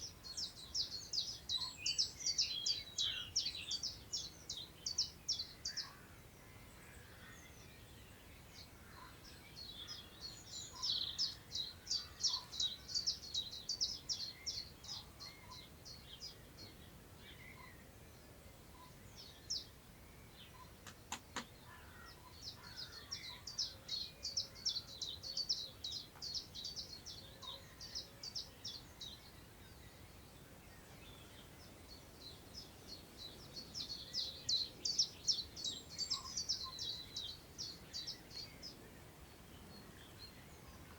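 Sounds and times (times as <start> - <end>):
faint wind: 0.0 - 40.9
songbird chirping: 0.0 - 40.9.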